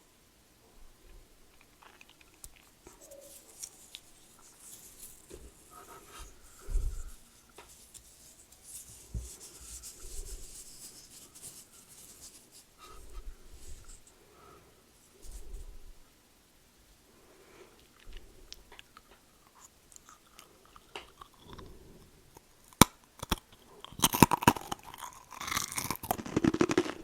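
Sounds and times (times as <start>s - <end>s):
rubbing and scratching on microphone: 2.9s - 14.1s, 26.0s - 27.0s.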